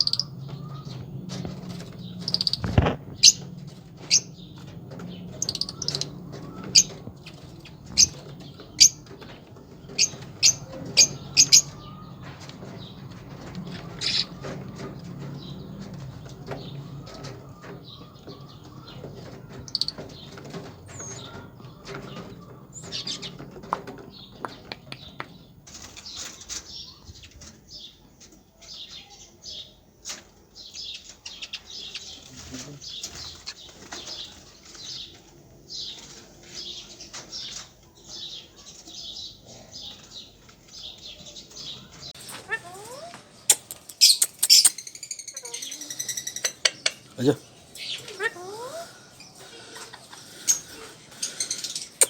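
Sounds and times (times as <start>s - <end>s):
wings fluttering: 0.0s - 27.6s
birds chirping: 0.0s - 52.0s.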